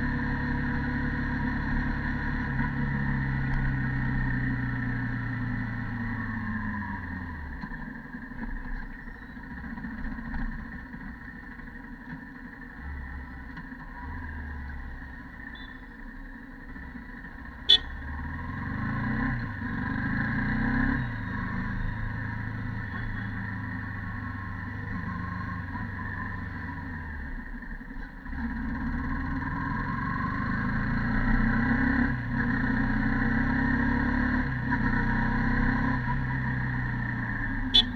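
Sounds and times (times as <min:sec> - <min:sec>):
motorcycle engine accelerating: 0:00.0 - 0:08.9, 0:16.7 - 0:37.9.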